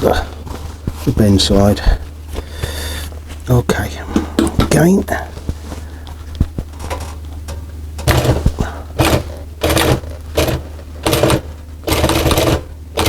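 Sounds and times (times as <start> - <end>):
sewing machine stitching: 8.0 - 13.0.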